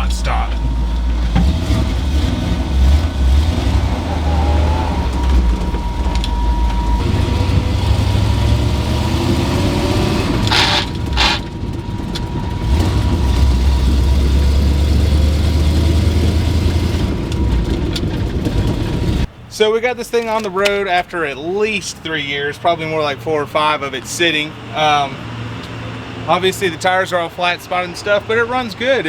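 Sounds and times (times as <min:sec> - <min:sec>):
truck engine and road rumble: 0:00.0 - 0:29.0.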